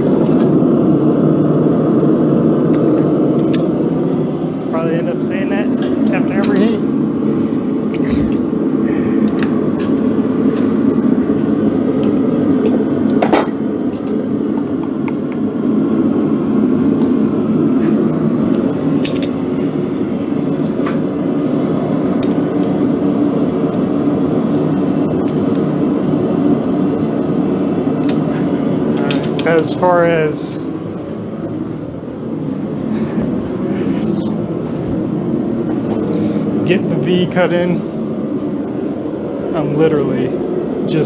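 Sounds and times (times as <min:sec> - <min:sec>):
forge roaring: 0:00.0 - 0:41.0
metal tools clinking: 0:19.0 - 0:19.4.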